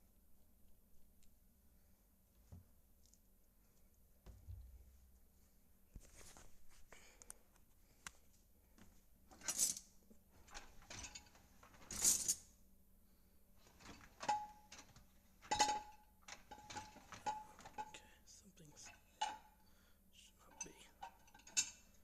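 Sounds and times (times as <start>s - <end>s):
dishes and cutlery clinking: 10.4s - 12.0s, 13.6s - 19.6s, 20.4s - 22.0s.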